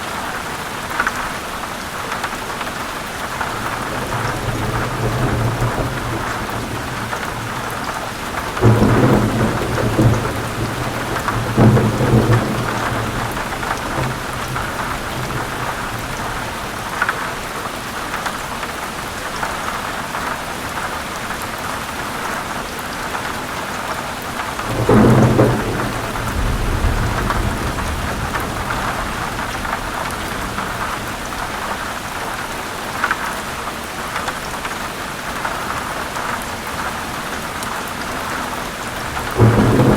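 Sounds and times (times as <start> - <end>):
heavy rain pouring: 0.0 - 39.9
thunder rumbling: 3.4 - 17.4, 24.6 - 32.3, 38.8 - 39.9.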